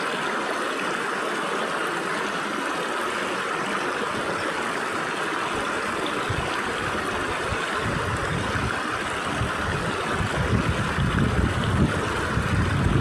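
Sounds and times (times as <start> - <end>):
stream rushing between rocks: 0.0 - 13.0
wind rumble on microphone: 5.5 - 13.0.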